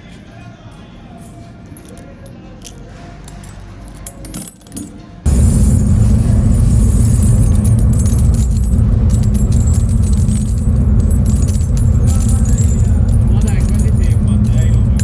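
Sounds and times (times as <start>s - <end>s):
brass casings jangling: 1.2s - 15.0s
low machine rumble: 5.3s - 15.0s.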